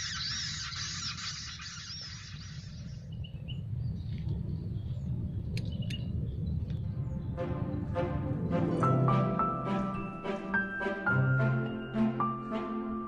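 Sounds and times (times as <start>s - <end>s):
birds chirping: 0.0s - 8.5s
steady low rumble: 0.0s - 10.5s.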